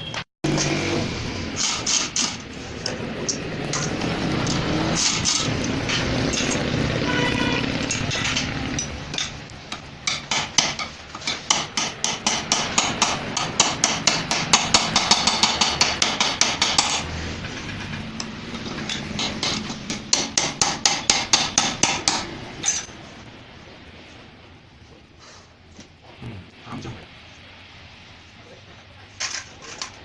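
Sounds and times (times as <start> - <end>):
hammer striking metal: 7.8 - 23.0.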